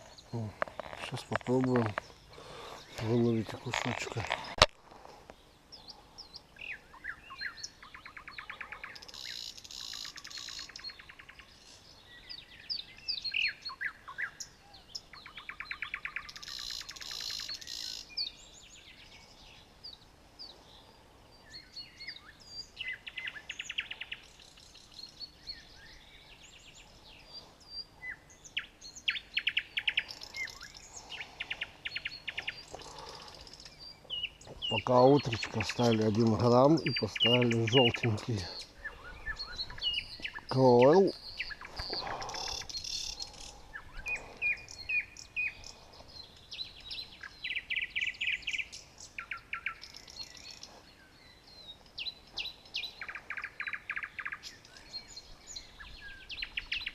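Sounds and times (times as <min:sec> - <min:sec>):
songbirds singing and chirping: 0:00.0 - 0:56.9.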